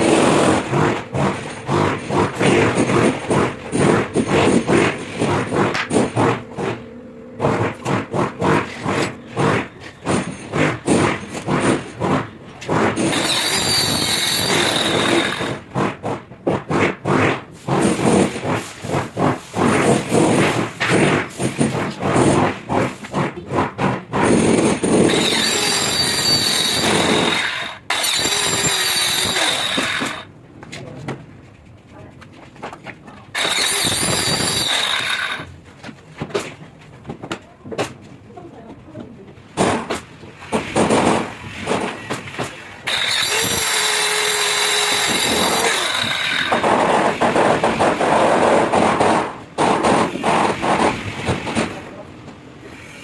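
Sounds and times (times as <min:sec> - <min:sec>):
hand-sawing strokes: 0:07.4 - 0:30.3, 0:33.4 - 0:35.5, 0:42.9 - 0:47.5
power tool high whine: 0:25.1 - 0:30.2, 0:33.4 - 0:35.5, 0:42.9 - 0:46.6.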